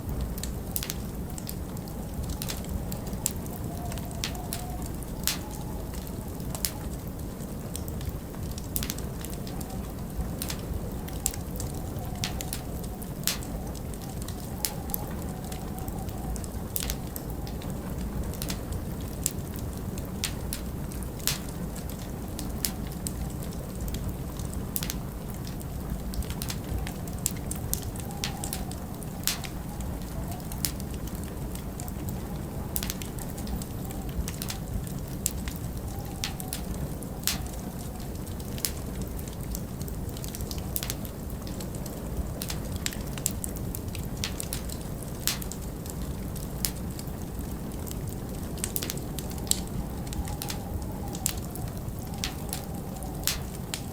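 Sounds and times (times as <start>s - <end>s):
low rumble of flames: 0.0s - 53.9s
storm wind: 0.0s - 53.9s
wood fire crackling and popping: 0.0s - 53.9s.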